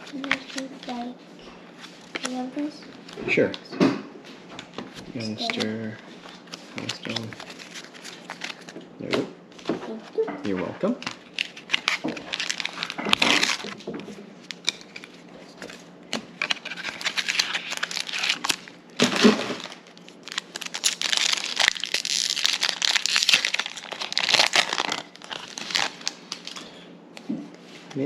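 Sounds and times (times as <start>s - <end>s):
foil wrapper tearing and crinkling: 5.4s - 8.7s, 11.0s - 15.8s, 16.4s - 26.7s.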